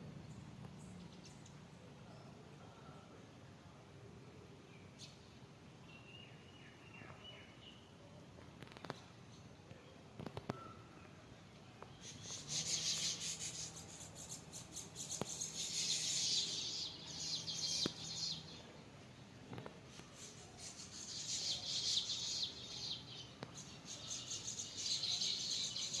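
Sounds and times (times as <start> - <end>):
birds chirping: 8.7 - 26.0.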